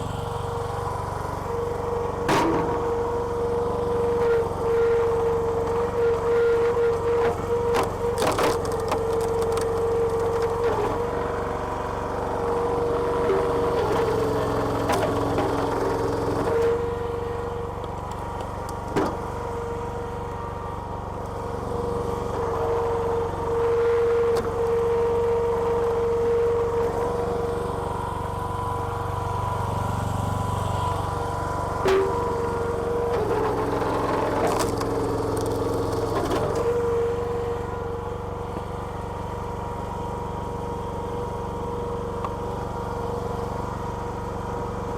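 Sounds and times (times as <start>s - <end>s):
petrol engine running: 0.0s - 40.8s
hydraulic whine: 0.0s - 43.0s
wood cracking and splintering: 5.5s - 11.2s.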